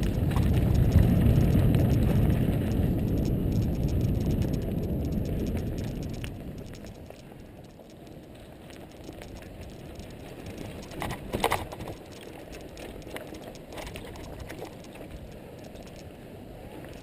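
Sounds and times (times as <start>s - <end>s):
bike tyres rumbling on dirt: 0.0s - 15.9s
bike rattling and clicking: 0.0s - 16.2s, 16.8s - 17.0s.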